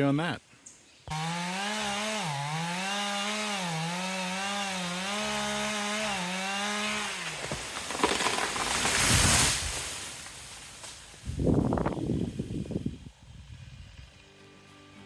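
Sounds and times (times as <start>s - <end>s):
chainsaw running: 1.1s - 14.3s
crackling rustling noise: 7.4s - 12.7s.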